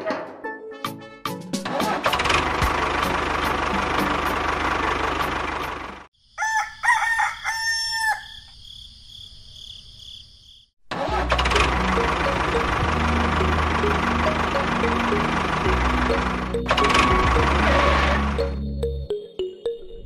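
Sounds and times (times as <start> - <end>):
rooster crowing: 6.3 - 8.5.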